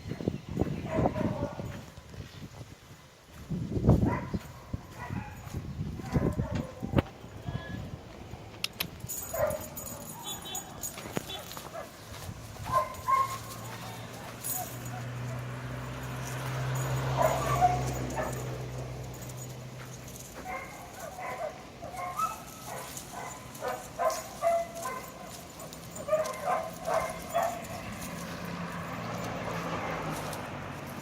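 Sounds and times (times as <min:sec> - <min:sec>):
dog barking: 0:00.8 - 0:01.7, 0:04.0 - 0:07.0, 0:09.3 - 0:12.0, 0:12.6 - 0:15.6, 0:16.8 - 0:18.7, 0:20.4 - 0:28.2.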